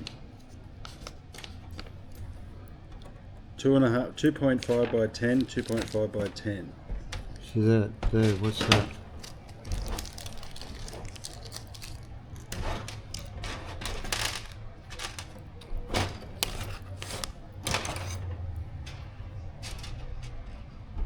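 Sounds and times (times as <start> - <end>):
small parts clicking and rattling: 4.5 - 6.5, 8.2 - 20.3.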